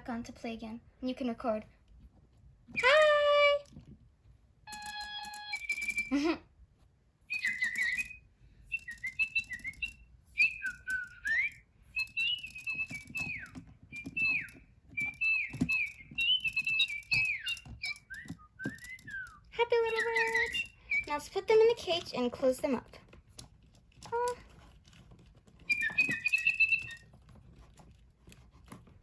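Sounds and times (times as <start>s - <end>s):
toy birds chirping: 2.7s - 3.8s, 4.7s - 6.4s, 7.3s - 27.7s.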